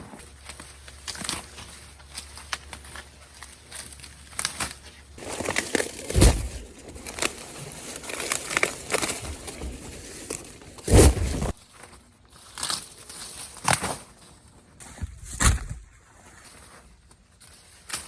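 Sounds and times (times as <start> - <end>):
dry corn husks crinkling and tearing: 0.3 - 18.0
heavy thumps: 5.2 - 11.6.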